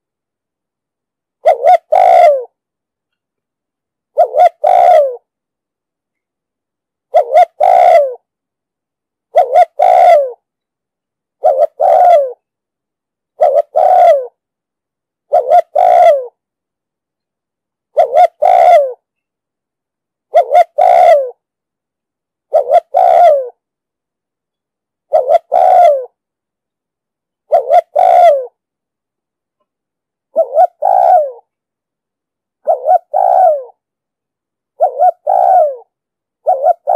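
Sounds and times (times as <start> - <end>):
dove cooing: 1.4 - 2.6, 4.1 - 5.3, 7.1 - 8.2, 9.3 - 10.4, 11.4 - 12.4, 13.4 - 14.4, 15.3 - 16.4, 17.9 - 19.0, 20.3 - 21.4, 22.5 - 23.6, 25.1 - 26.2, 27.5 - 28.6, 30.3 - 31.5, 32.6 - 33.8, 34.8 - 36.9.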